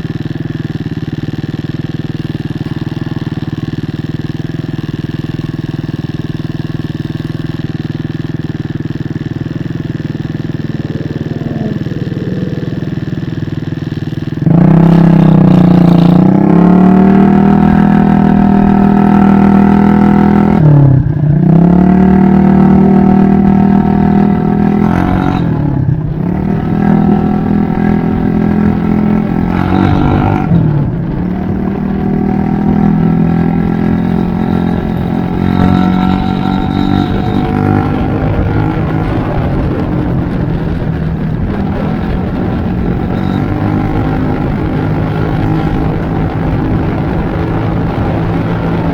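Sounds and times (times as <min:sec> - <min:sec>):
scooter engine revving: 0:00.0 - 0:48.9.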